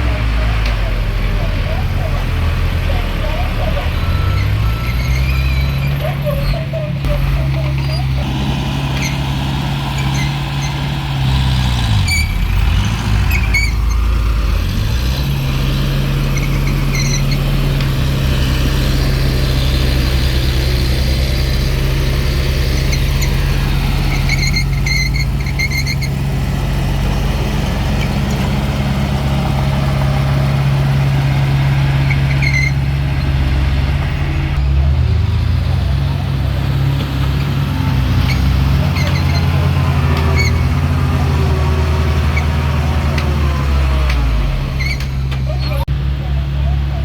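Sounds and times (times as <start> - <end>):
bulldozer diesel engine running: 0.0 - 47.0
high-pitched metallic squeaks: 3.2 - 11.0, 11.6 - 12.6, 13.2 - 14.1, 16.2 - 17.6, 22.6 - 26.2, 32.0 - 33.3, 38.2 - 41.6, 44.7 - 45.9.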